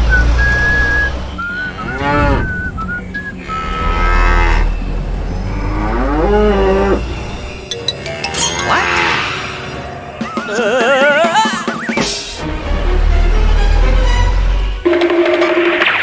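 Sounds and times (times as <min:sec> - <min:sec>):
whistled tune: 0:00.0 - 0:08.7, 0:09.7 - 0:12.4
cow mooing: 0:00.3 - 0:09.8.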